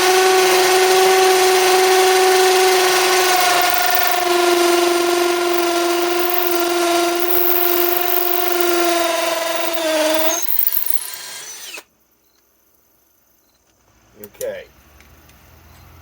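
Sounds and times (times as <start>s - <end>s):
hammer drill drilling into brick: 0.0s - 11.9s.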